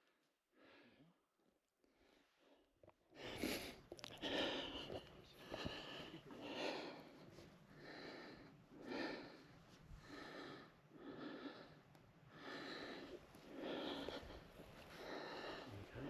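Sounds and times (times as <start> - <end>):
person breathing hard: 3.2 - 16.0.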